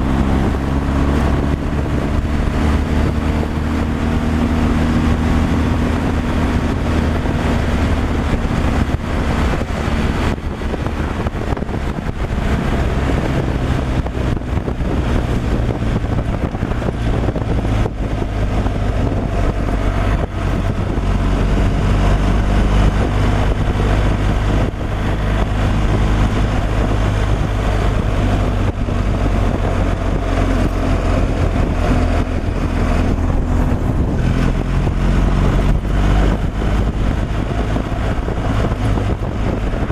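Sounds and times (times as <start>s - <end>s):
road and wind noise: 0.0s - 39.9s
truck engine running: 0.0s - 39.9s.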